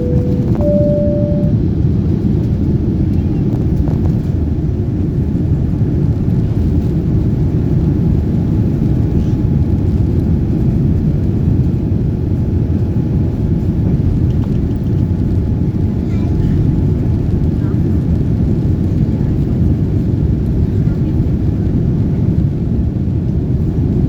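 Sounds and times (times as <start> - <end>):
air rushing along fuselage: 0.0 - 1.6.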